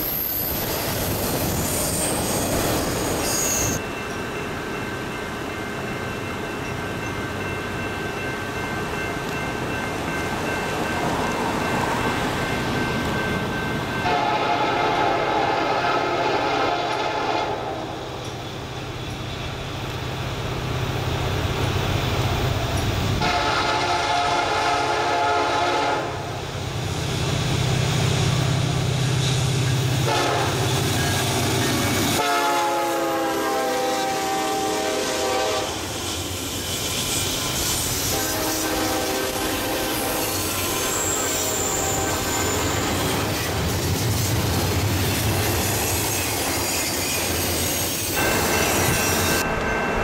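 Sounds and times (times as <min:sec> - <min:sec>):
train horn blasts: 0:14.0 - 0:18.0, 0:23.2 - 0:26.4, 0:30.0 - 0:30.7, 0:32.1 - 0:36.1, 0:38.1 - 0:42.7.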